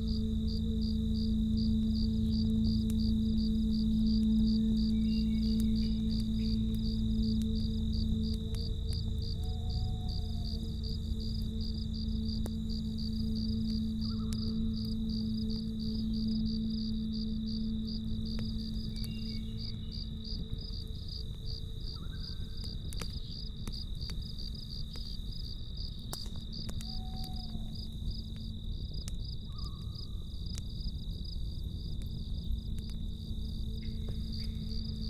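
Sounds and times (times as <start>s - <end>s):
campfire crackling: 0.0s - 35.0s
crickets chirping: 0.0s - 35.0s
high insect trill: 0.0s - 35.0s
low steady hum: 0.0s - 35.0s.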